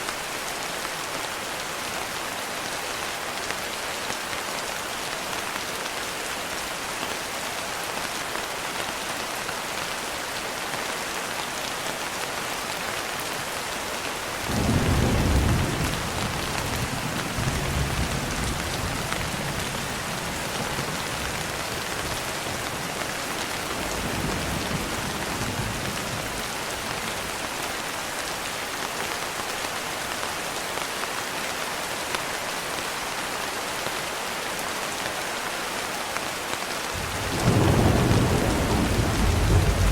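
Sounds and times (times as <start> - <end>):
thunder rumbling: 14.5 - 19.7, 37.0 - 39.9
rain hissing: 37.0 - 39.9.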